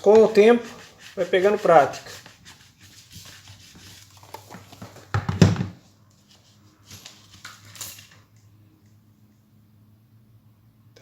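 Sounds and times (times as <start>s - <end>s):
scraping on work surface: 0.0s - 5.0s.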